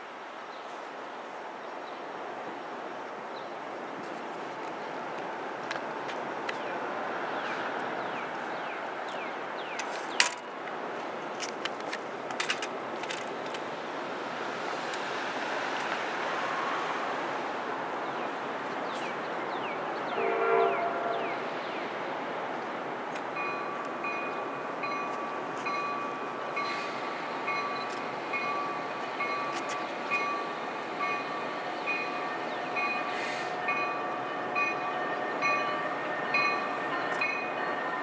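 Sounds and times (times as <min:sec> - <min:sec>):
train rumble: 0:00.8 - 0:38.0
distant train horn: 0:20.1 - 0:21.5.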